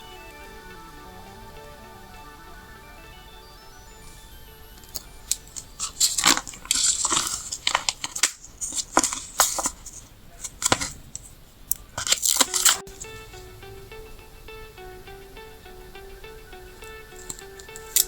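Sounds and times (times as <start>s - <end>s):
paper stickers rustling and peeling: 5.3s - 13.0s.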